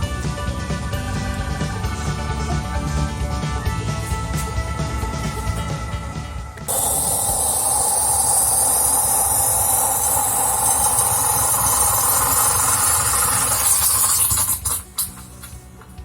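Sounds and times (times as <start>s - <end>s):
coffee maker steam hissing: 6.7s - 15.6s.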